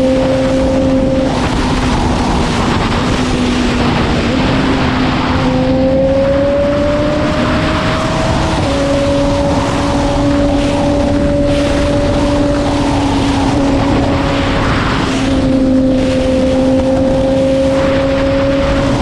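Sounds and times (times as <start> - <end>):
motorcycle engine running: 0.0 - 19.0
wind rush on microphone: 0.0 - 19.0.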